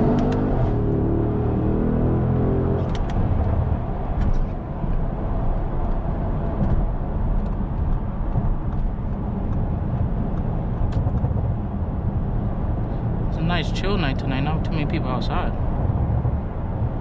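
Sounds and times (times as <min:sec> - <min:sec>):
road and tyre noise: 0:00.0 - 0:17.0.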